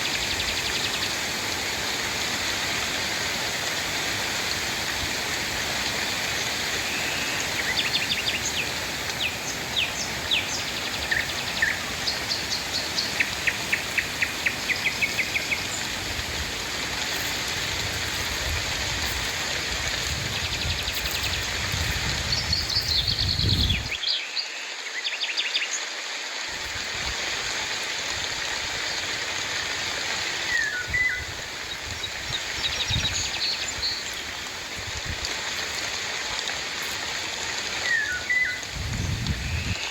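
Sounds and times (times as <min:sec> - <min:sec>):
steady rain falling: 0:00.0 - 0:24.0, 0:26.3 - 0:39.9
birds chirping: 0:06.3 - 0:24.0.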